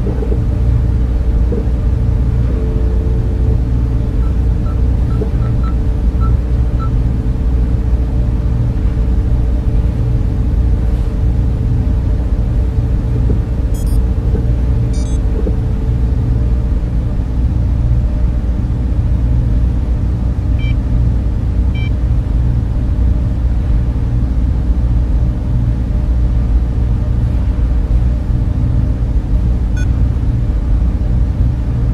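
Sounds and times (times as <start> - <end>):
cooling fans rumbling: 0.0 - 31.9
hum: 0.0 - 31.9.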